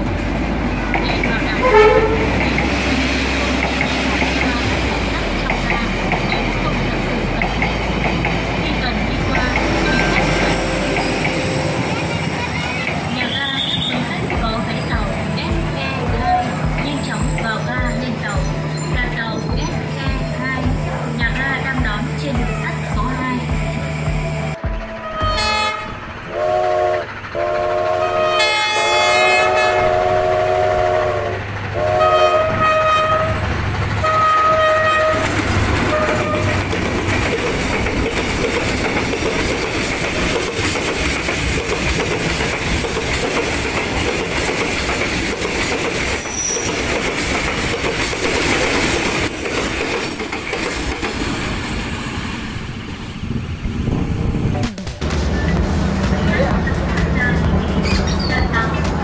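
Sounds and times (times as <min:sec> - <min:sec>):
train rumbling and clattering past: 0:00.0 - 0:59.0
train horn blasts: 0:01.6 - 0:02.5, 0:09.2 - 0:12.4, 0:24.8 - 0:33.4, 0:34.0 - 0:36.6.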